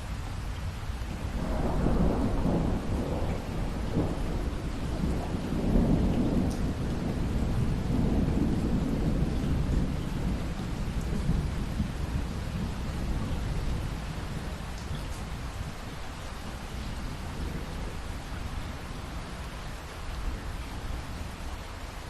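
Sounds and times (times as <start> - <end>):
steady rain: 0.0 - 22.0
rolling thunder: 1.3 - 15.7.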